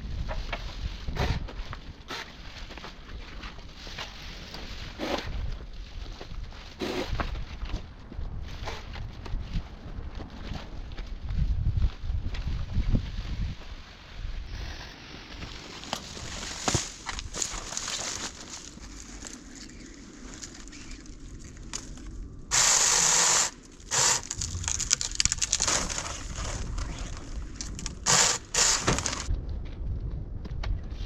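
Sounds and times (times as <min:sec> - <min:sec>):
wooden branches cracking: 0:15.3 - 0:29.4
bursts of harsh noise: 0:22.5 - 0:24.8, 0:27.8 - 0:29.3.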